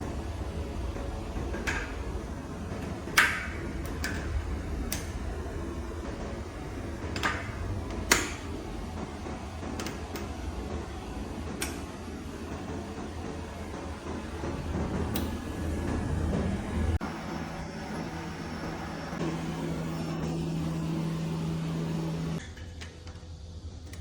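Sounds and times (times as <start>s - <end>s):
steady low hum: 0.0s - 24.0s
sharp clicks and knocks: 0.9s - 6.4s, 7.0s - 10.8s.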